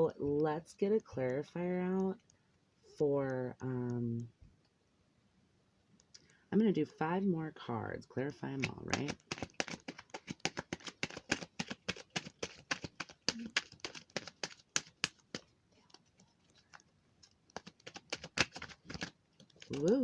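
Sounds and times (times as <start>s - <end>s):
cards shuffling and clicking: 8.6s - 20.0s.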